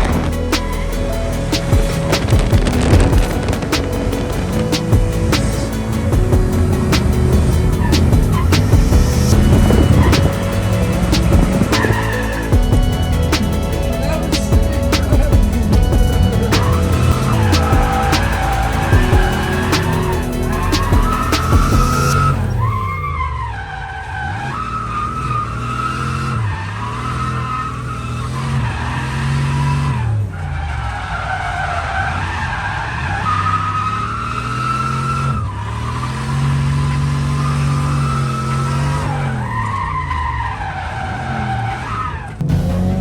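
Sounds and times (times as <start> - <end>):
tyres squealing: 0.0 - 23.2
car engine revving: 0.0 - 43.0.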